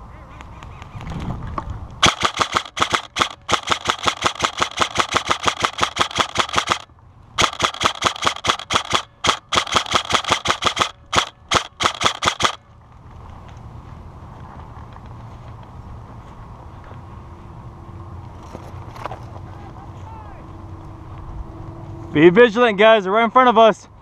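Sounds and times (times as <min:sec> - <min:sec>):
airsoft rifle firing: 0:02.0 - 0:12.6.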